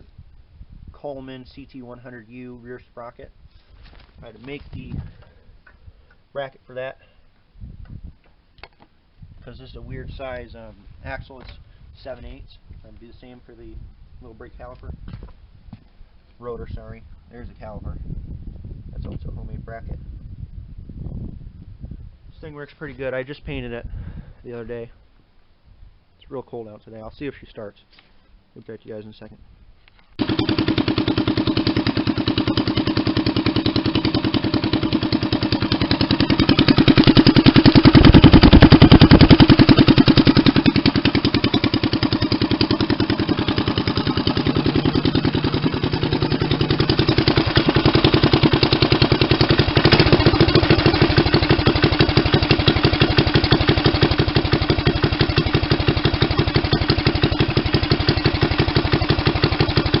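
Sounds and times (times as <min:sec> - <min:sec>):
small engine puttering: 0:30.1 - 1:00.0.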